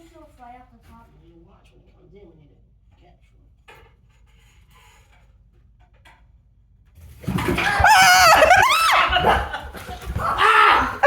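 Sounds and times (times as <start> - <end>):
startled screaming and yelping: 7.3 - 11.0.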